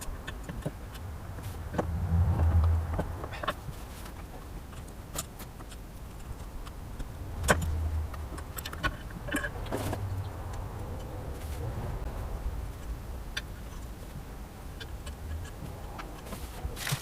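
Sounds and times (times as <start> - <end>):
low hum: 0.8 - 3.9, 6.9 - 14.0.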